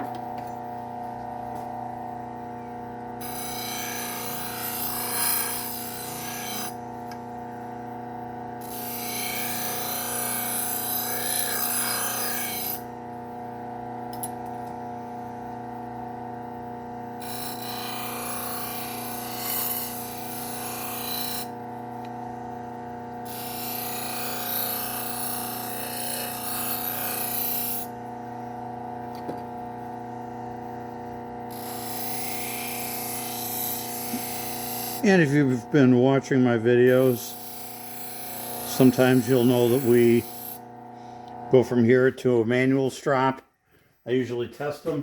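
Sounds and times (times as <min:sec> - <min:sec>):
sander motor humming: 0:20.0 - 0:41.9.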